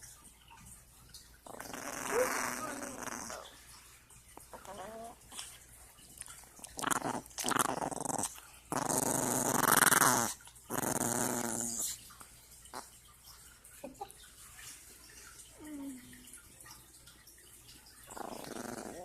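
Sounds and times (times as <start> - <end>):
dog growling: 1.4 - 3.6, 4.5 - 5.5, 6.4 - 12.0, 18.1 - 19.0.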